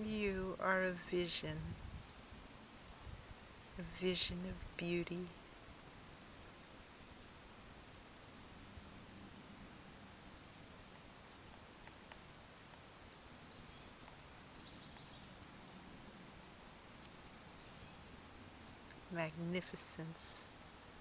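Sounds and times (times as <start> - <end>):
soft outdoor hiss: 0.0 - 21.0
bird chirps and trills: 11.0 - 15.9, 16.8 - 20.1.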